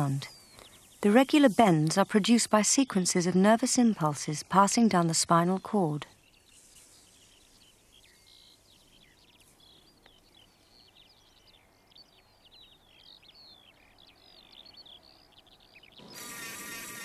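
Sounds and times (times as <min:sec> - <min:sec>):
birds chirping and whistling: 0:00.0 - 0:02.0, 0:06.2 - 0:17.0
low outdoor hiss: 0:00.0 - 0:17.0.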